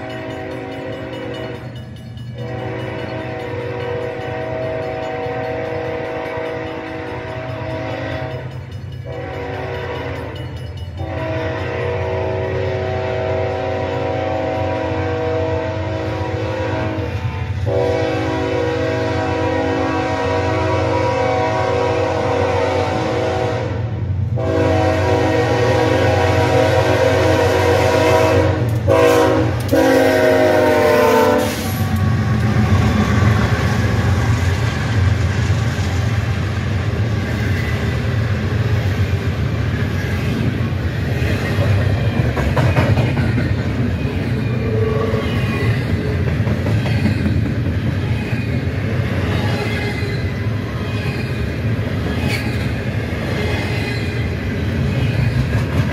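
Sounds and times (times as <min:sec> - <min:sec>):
freight train wheels clattering: 0:00.0 - 0:15.3, 0:24.3 - 0:55.9
locomotive air horn blasts: 0:02.4 - 0:08.5, 0:09.1 - 0:10.4, 0:11.0 - 0:33.0.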